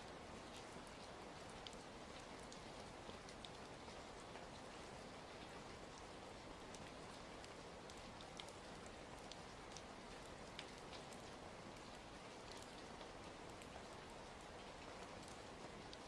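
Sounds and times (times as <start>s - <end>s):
steady rain: 0.0s - 16.0s
small clicks and pops: 6.7s - 12.8s.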